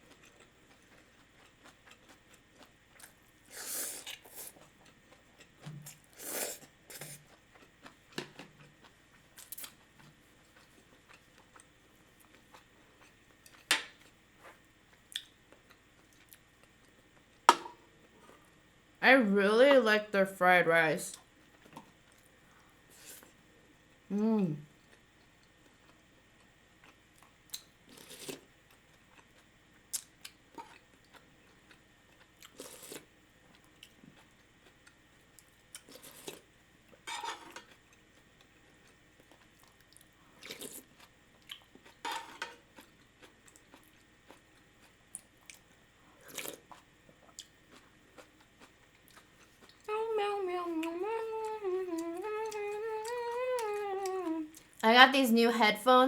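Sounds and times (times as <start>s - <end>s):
chewing and biting food: 0.0s - 17.4s, 24.8s - 49.9s
woman humming: 19.0s - 21.1s, 24.1s - 24.7s, 49.8s - 56.0s.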